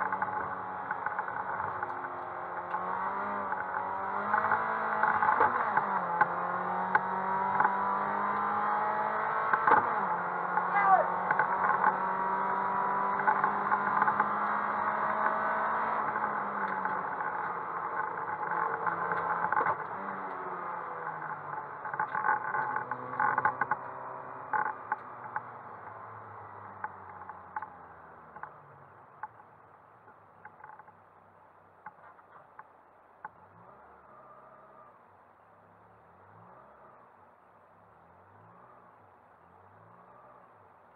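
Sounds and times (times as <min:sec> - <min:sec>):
sharp clicks and rattles: 0:00.0 - 0:02.8, 0:16.0 - 0:20.4, 0:21.0 - 0:26.0, 0:26.8 - 0:28.6, 0:29.2 - 0:31.1
rally car engine from inside: 0:00.0 - 0:29.5, 0:38.0 - 0:40.8
road and cabin noise: 0:00.0 - 0:40.9.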